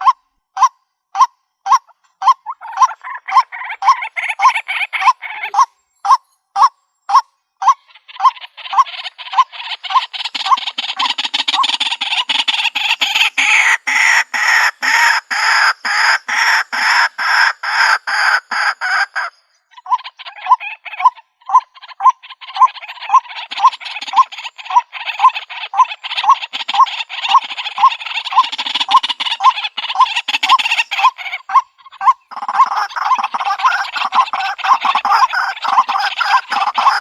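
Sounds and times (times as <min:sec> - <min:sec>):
waterhen repeated notes: 0:00.0 - 0:25.9, 0:26.8 - 0:37.0
harsh croaking calls: 0:00.0 - 0:37.0.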